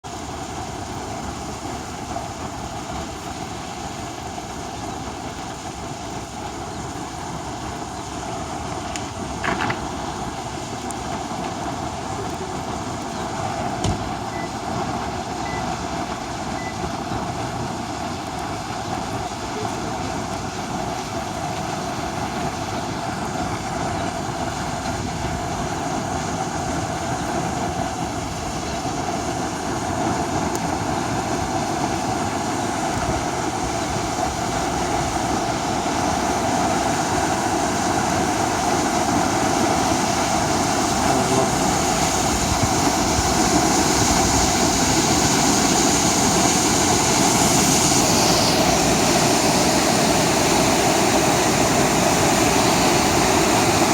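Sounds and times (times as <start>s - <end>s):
floodwater rushing: 0.0s - 53.9s.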